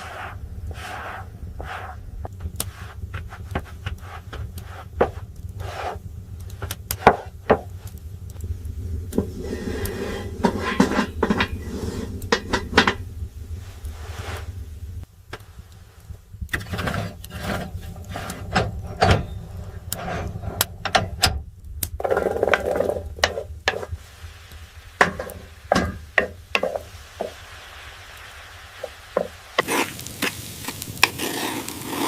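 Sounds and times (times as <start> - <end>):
steady low hum: 0.0 - 31.2
scraping sound: 9.1 - 14.7, 16.6 - 20.8
wooden knocks and clatters: 22.0 - 24.0.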